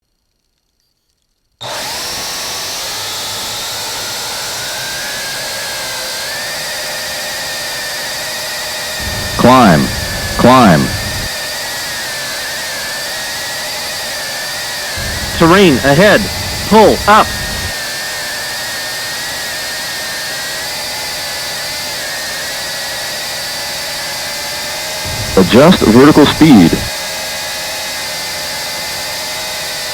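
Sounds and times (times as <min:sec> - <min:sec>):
drone propellers whining: 0:09.0 - 0:11.3, 0:15.0 - 0:17.7, 0:25.0 - 0:26.9.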